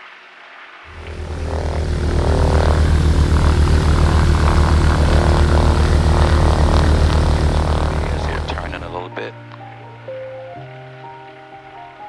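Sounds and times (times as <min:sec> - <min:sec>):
twin propeller engines droning: 0:00.9 - 0:09.0.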